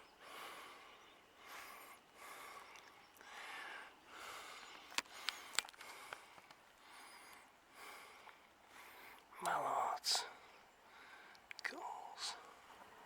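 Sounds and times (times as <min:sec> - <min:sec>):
person breathing: 0:00.2 - 0:09.3, 0:10.2 - 0:11.5
sharp clicks: 0:04.8 - 0:06.6.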